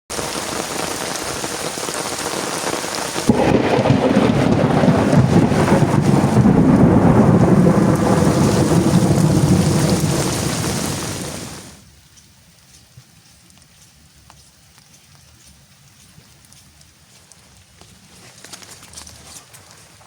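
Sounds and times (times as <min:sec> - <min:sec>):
heavy rain falling: 0:00.1 - 0:11.9
thunder clap and rumble: 0:03.2 - 0:11.8.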